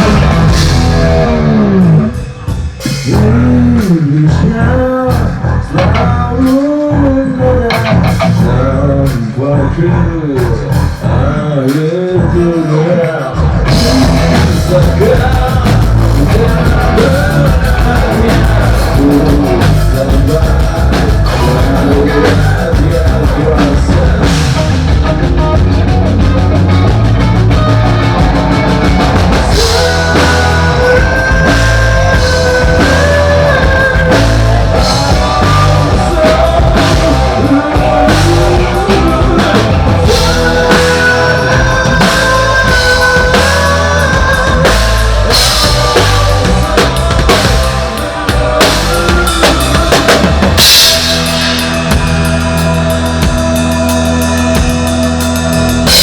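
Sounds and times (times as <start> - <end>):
drums: 0.0 - 56.0
rock band playing live: 0.0 - 56.0.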